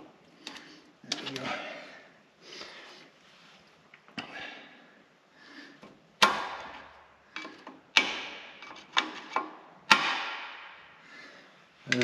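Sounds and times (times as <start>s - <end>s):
hammer striking steel: 9.9s - 10.7s.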